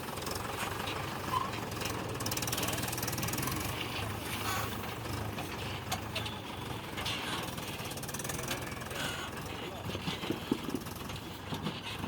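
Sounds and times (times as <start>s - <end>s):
tractor diesel engine droning: 0.0s - 12.0s
engine knocks: 4.8s - 12.0s.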